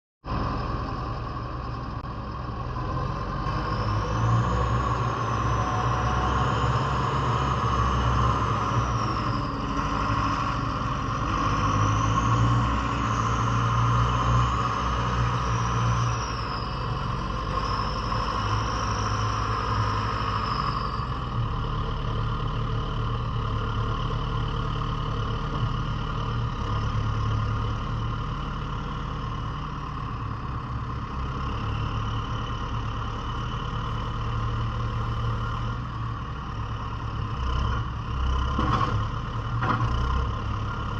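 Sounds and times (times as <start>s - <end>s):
diesel engine running: 0.2s - 40.9s
high wavering whine: 4.6s - 9.8s.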